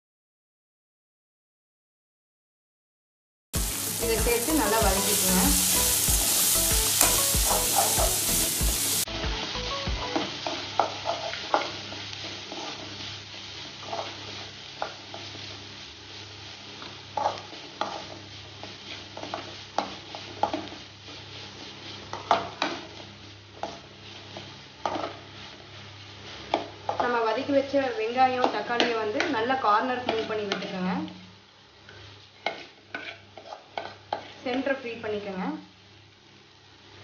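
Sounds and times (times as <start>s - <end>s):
food sizzling in oil: 3.6s - 37.0s
spatula scraping metal pan: 32.4s - 34.4s.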